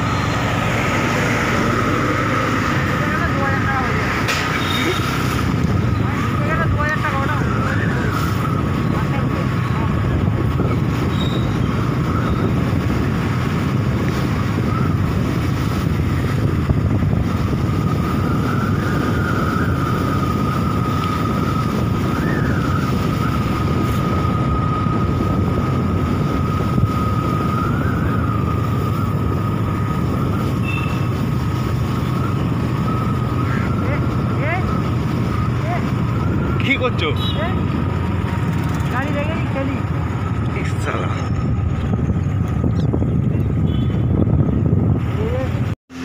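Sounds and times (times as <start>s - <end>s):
wind buffeting microphone: 0.0s - 45.8s.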